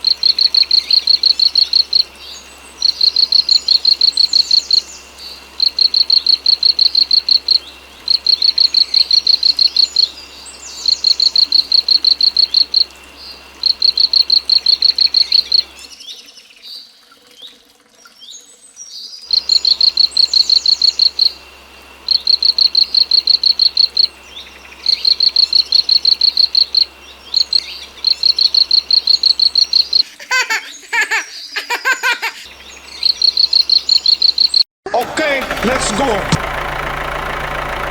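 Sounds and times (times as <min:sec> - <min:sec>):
crickets chirping: 0:00.0 - 0:15.9, 0:19.3 - 0:34.6
bird chirps: 0:00.0 - 0:16.4, 0:19.3 - 0:34.6.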